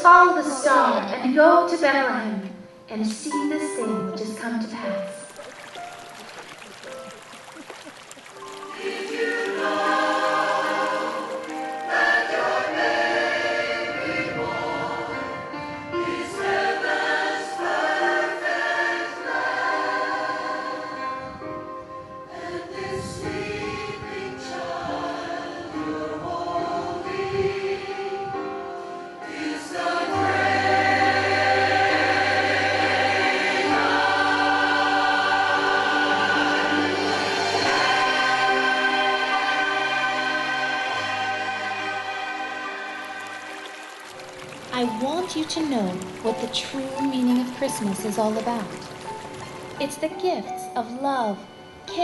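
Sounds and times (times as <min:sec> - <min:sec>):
choir singing: 0:08.5 - 0:21.5, 0:22.3 - 0:44.0.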